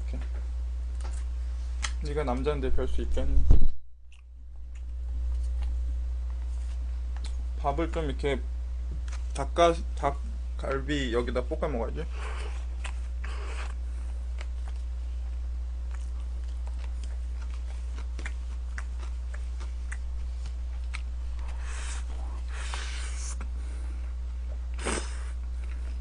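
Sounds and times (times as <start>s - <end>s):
low hum: 0.0s - 26.0s
man chewing food: 4.1s - 7.6s, 12.1s - 26.0s.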